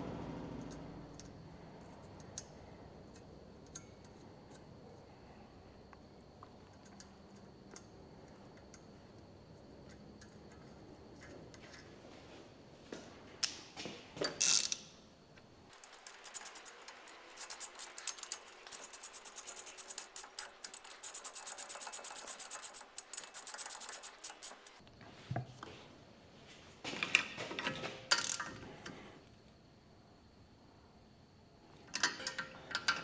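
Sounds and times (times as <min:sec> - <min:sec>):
socket ratchet clicking: 0:15.8 - 0:24.8
metallic clanks of tools: 0:31.9 - 0:33.0.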